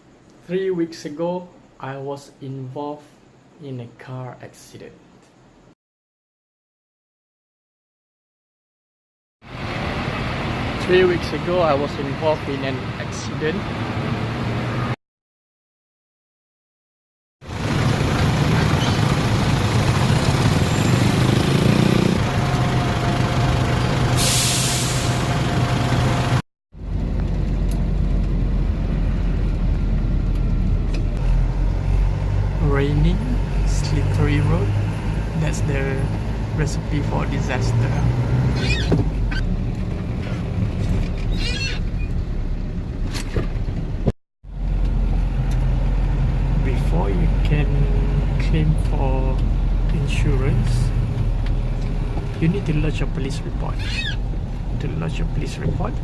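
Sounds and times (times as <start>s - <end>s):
vehicle rumbling on road: 9.5s - 15.0s, 17.4s - 56.0s
engine hum: 17.5s - 56.0s
sharp hiss: 24.2s - 25.2s
high squeak: 38.5s - 39.5s, 41.3s - 42.1s, 53.8s - 54.2s.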